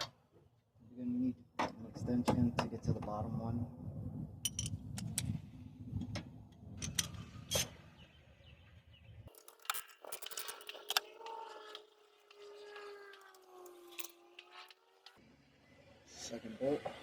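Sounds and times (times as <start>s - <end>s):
hand tools clinking on metal: 9.3s - 15.2s.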